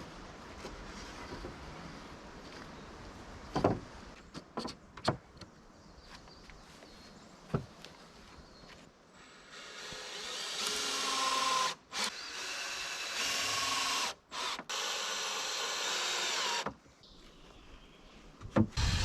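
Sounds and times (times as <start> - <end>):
power drill running: 9.5 - 16.6.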